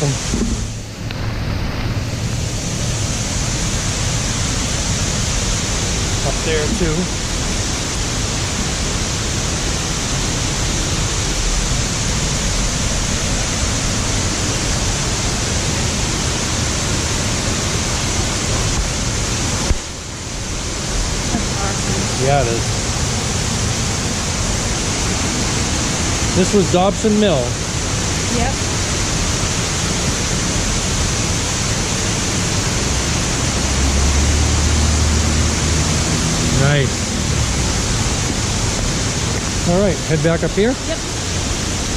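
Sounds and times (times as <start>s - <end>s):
rushing flowing water: 0.0s - 41.9s
deep low rumble: 10.1s - 27.6s, 28.2s - 41.2s.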